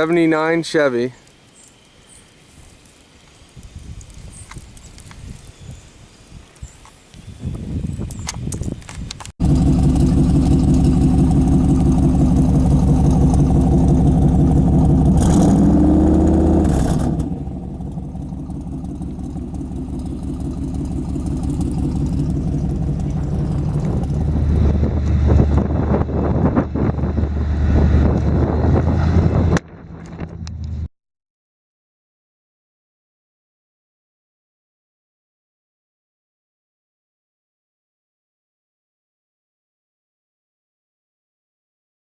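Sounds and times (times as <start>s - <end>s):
truck engine running: 9.4s - 30.9s.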